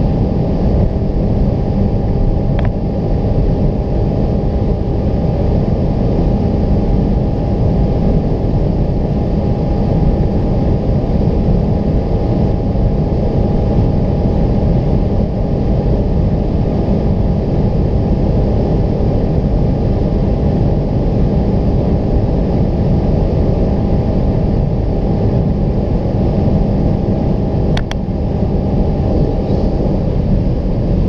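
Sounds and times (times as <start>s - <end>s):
car engine at high revs: 0.0s - 31.0s
sharp click: 27.8s - 28.0s.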